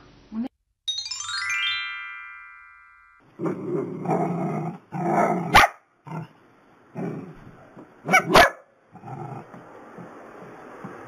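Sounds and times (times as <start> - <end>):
dog barking: 5.2 - 5.9, 8.0 - 8.7.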